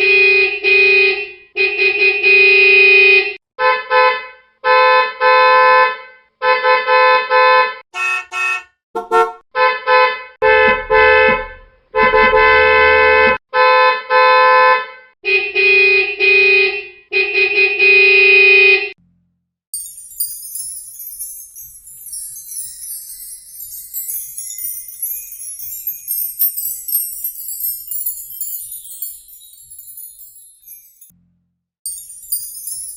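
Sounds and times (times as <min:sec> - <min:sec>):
horn blasts: 0:07.9 - 0:13.4
small bells jingling: 0:19.8 - 0:31.1, 0:31.9 - 0:32.9.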